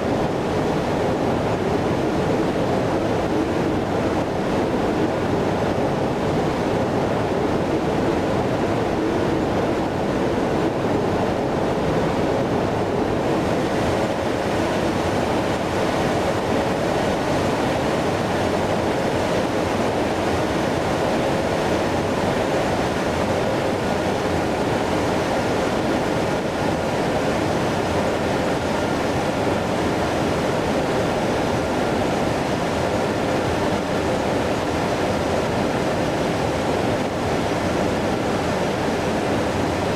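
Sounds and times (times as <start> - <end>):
jet engines roaring: 11.4 - 28.2.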